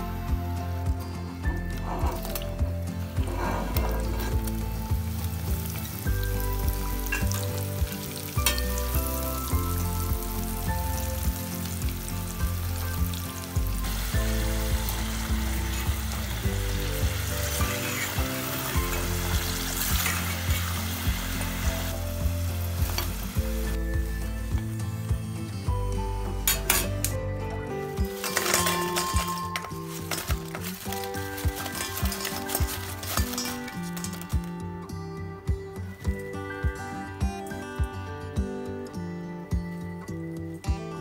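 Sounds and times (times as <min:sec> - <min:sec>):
background music with beat: 0:00.0 - 0:41.0
potatoes sizzling in oil: 0:02.2 - 0:25.3, 0:27.9 - 0:34.5.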